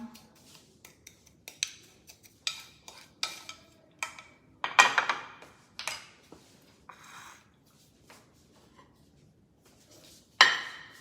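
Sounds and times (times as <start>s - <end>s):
spoon scraping and clinking dish: 0.8s - 4.4s, 6.9s - 7.5s.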